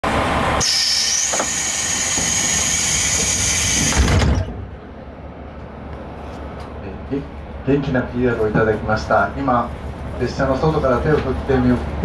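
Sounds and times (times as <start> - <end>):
loud steady hiss: 0.6 - 4.0.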